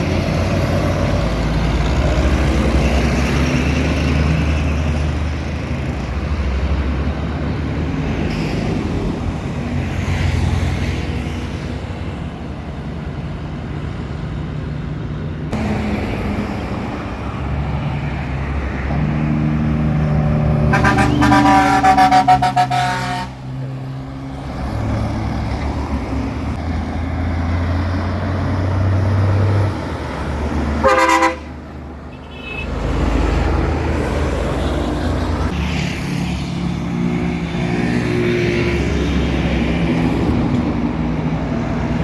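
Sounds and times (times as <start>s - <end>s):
road noise: 0.0s - 42.0s
truck diesel engine droning: 0.0s - 42.0s.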